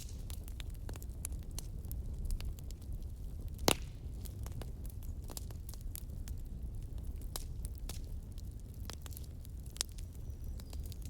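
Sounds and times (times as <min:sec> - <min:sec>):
low rumble of burning: 0:00.0 - 0:11.0
wood fire crackling and popping: 0:00.0 - 0:11.0.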